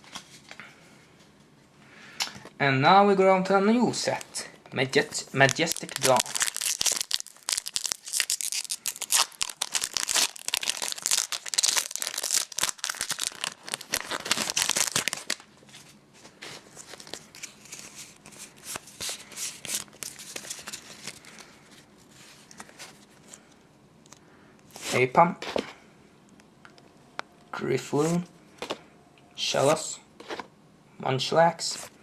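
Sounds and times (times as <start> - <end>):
cards rustling: 5.2 - 23.4
foil wrapper tearing and crinkling: 5.4 - 15.5.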